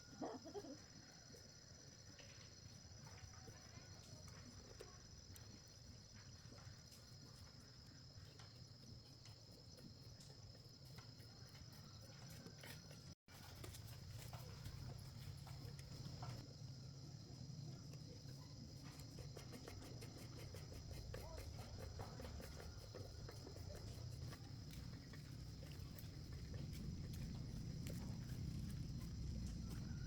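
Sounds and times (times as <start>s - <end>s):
crickets chirring: 13.8s - 30.0s.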